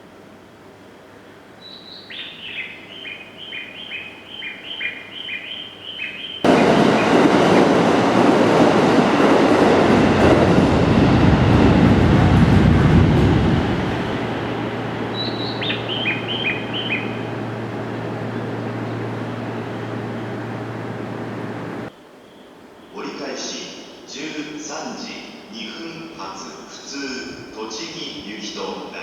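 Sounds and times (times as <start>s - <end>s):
bird chirping: 1.6s - 7.2s, 13.2s - 23.0s
train rushing past: 6.4s - 21.9s.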